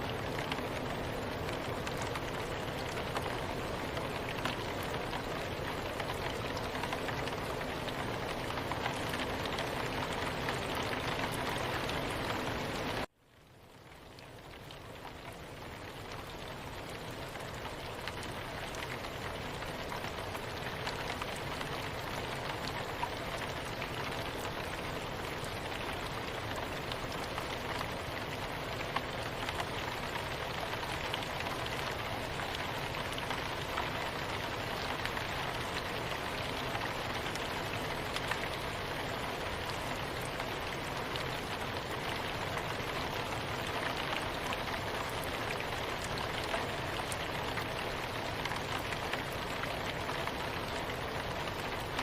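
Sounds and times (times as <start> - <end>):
soft rain falling: 0.0 - 52.0.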